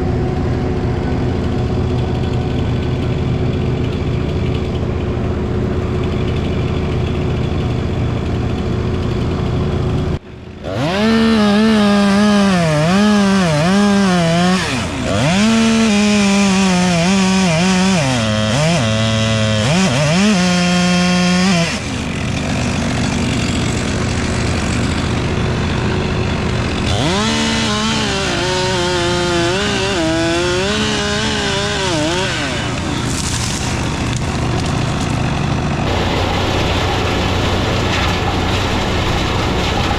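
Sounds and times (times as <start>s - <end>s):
engine running steadily: 0.0s - 10.9s, 21.8s - 28.6s, 29.6s - 39.9s
chainsaw cutting wood: 0.0s - 39.9s.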